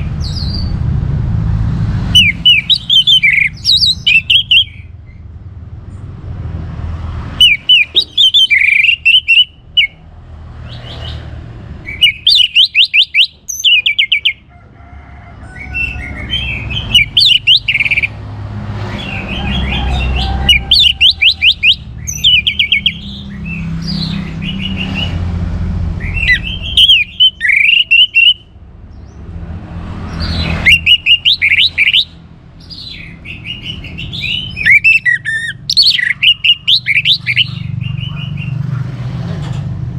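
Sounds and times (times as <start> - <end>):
thrush singing whistled notes: 2.1 - 4.9, 7.3 - 10.0, 10.6 - 14.5, 15.6 - 18.2, 18.9 - 25.2, 26.0 - 28.6, 30.1 - 38.6.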